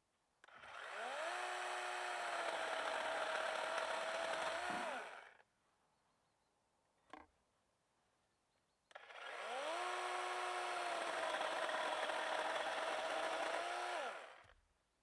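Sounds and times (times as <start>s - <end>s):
chainsaw motor running: 0.5s - 5.4s, 8.9s - 14.6s.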